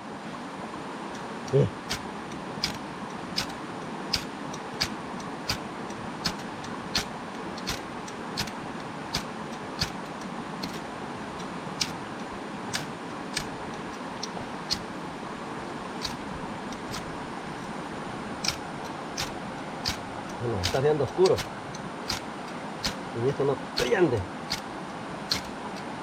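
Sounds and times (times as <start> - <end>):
river water rushing: 0.0 - 26.0
sharp repeating click: 1.5 - 12.1, 12.7 - 14.9, 16.0 - 17.2, 18.4 - 23.2, 23.8 - 24.7, 25.3 - 25.9.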